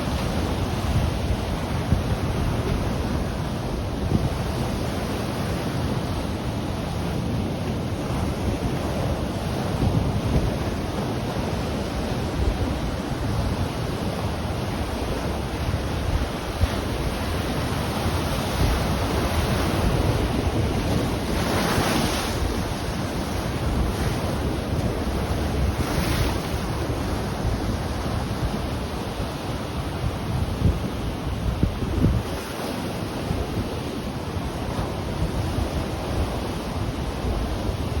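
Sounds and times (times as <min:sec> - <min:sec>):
ocean waves breaking: 0:00.0 - 0:38.0
wind buffeting microphone: 0:00.0 - 0:38.0.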